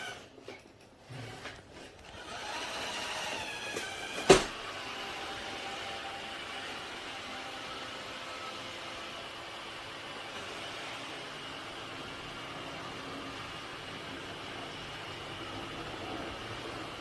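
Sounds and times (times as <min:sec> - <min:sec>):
robot vacuum motor hum: 0:02.0 - 0:07.8.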